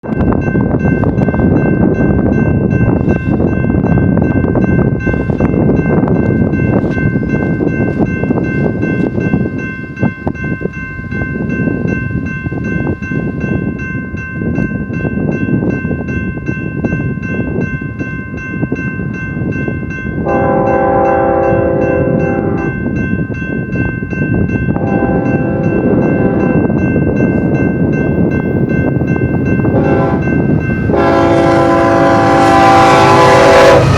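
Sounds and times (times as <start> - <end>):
freight train wheels rumbling: 0.0 - 33.9
high steady ringing: 0.1 - 33.9
train horn: 20.2 - 22.8, 24.8 - 26.6, 29.7 - 33.9.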